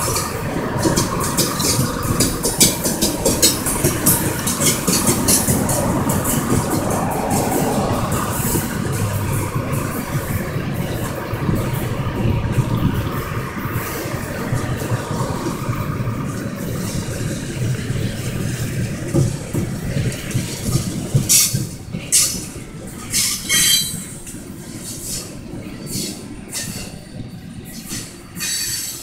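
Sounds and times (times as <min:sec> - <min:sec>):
wheels squealing: 0:00.0 - 0:12.4
train wheels rumbling on rails: 0:00.0 - 0:29.0.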